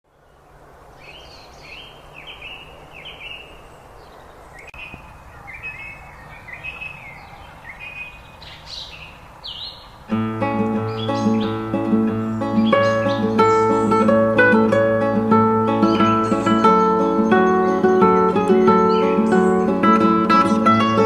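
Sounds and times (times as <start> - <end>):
background hiss: 0.1 - 21.0
birds chirping and trilling: 0.1 - 21.0
strummed acoustic guitar music: 10.1 - 21.0.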